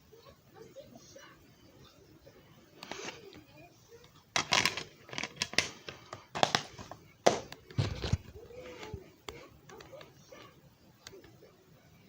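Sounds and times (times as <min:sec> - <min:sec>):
objects knocking and clicking: 0:04.4 - 0:08.9.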